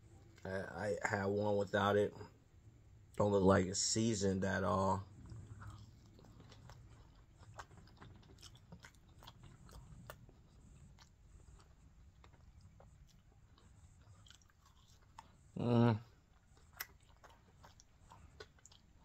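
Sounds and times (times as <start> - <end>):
low background hum: 0.0 - 19.0
person chewing: 5.1 - 19.0.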